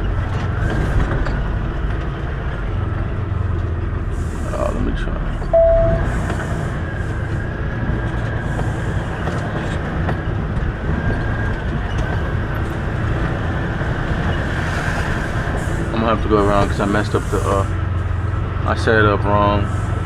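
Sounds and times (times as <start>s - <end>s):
diesel truck engine rumbling: 0.0s - 20.0s
short loud tone: 5.6s - 6.2s.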